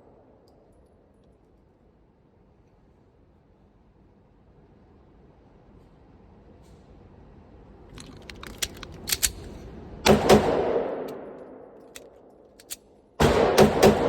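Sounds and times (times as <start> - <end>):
metallic handling clicks: 7.9 - 9.7, 11.0 - 13.0
airsoft pistol shots: 10.1 - 11.7, 12.6 - 14.0.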